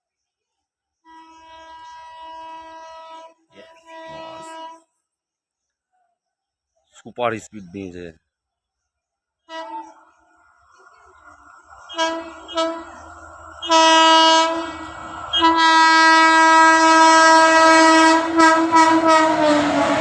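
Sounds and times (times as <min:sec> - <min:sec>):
locomotive horn blasts: 0:01.1 - 0:04.8, 0:09.5 - 0:10.0, 0:11.8 - 0:20.0
train rolling past: 0:09.5 - 0:20.0.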